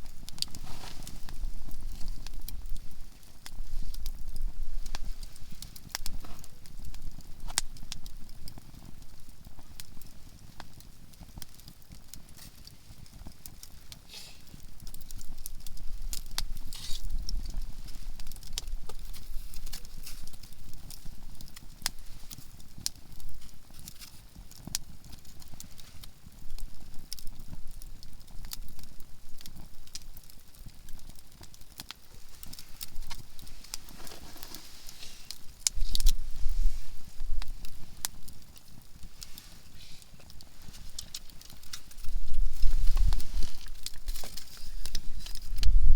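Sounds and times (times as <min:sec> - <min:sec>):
campfire crackling and popping: 0:00.0 - 0:45.9.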